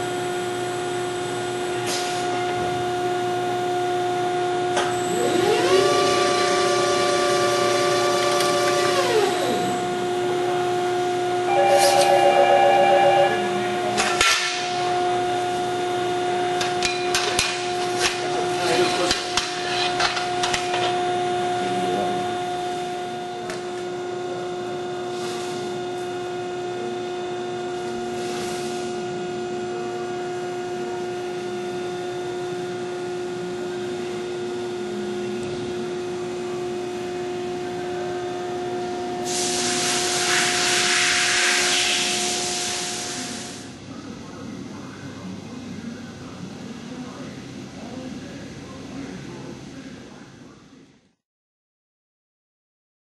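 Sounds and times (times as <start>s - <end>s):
bending machine humming: 0.0s - 25.1s, 28.9s - 50.2s
hiss: 39.2s - 43.7s.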